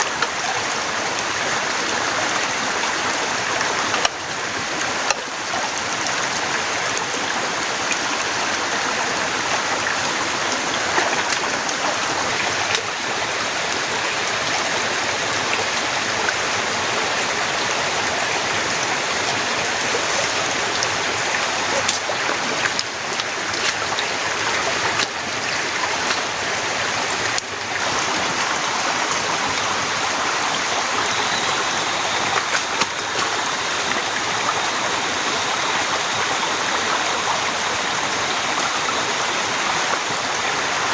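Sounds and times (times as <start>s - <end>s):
heavy rain pouring: 0.0s - 40.9s
faint drips and taps: 19.2s - 29.7s.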